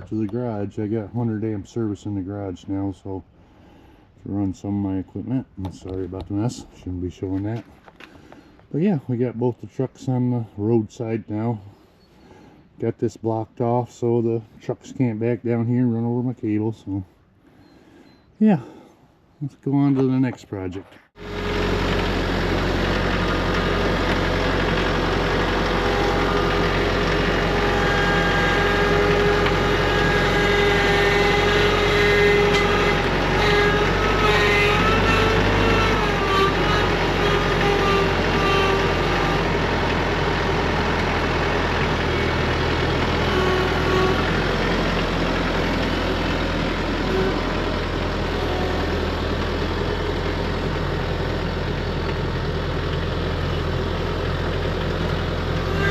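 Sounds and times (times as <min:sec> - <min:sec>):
tractor engine running: 0:21.1 - 0:55.9
wavering whining tone: 0:21.2 - 0:52.0, 0:55.0 - 0:55.9.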